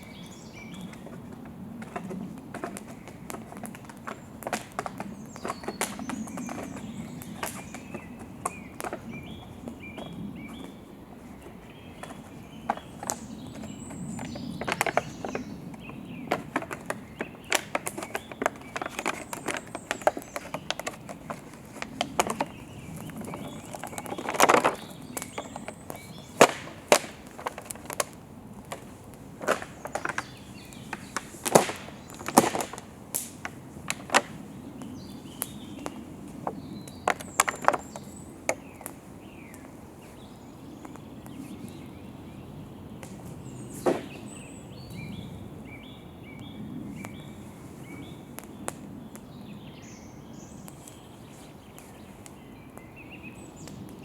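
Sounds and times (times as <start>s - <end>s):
campfire crackling and popping: 16.7s - 39.8s, 48.3s - 49.3s.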